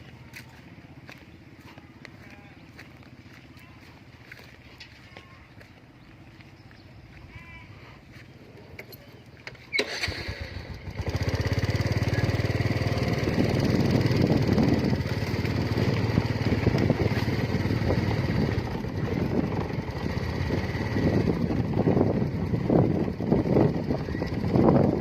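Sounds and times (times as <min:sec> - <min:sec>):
small engine running: 0:09.1 - 0:25.0.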